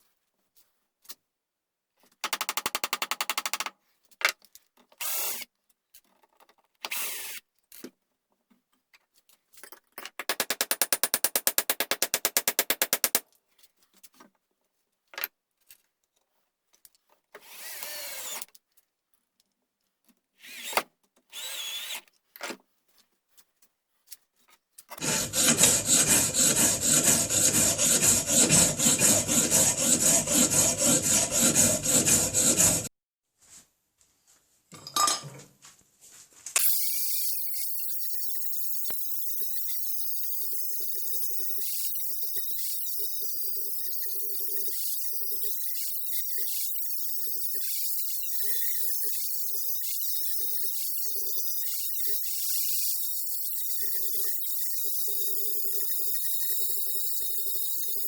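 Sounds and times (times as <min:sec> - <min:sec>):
tools working wood: 0:10.2 - 0:13.2, 0:25.0 - 0:32.9, 0:36.6 - 0:58.0.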